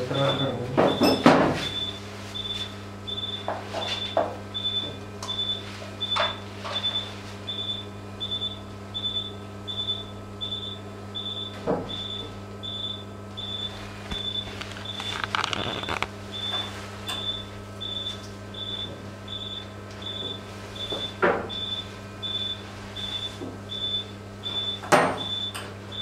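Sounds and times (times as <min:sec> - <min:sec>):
electrical hum: 0:00.0 - 0:26.0
surgical instruments clicking: 0:14.6 - 0:16.1.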